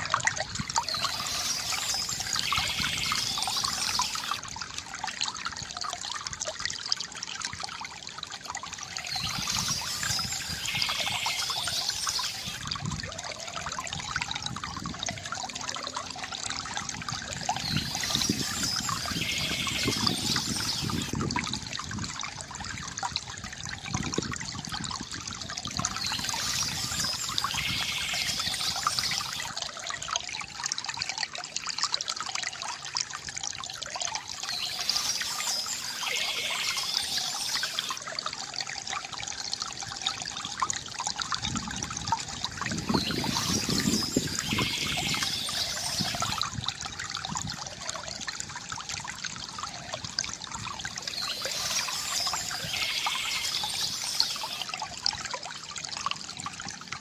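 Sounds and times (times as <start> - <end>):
water trickling from bamboo fountain: 0.0 - 57.0
birds chirping: 0.8 - 4.4, 8.9 - 12.6, 17.6 - 21.1, 25.8 - 29.5, 34.4 - 38.0, 42.8 - 46.4, 51.1 - 54.7.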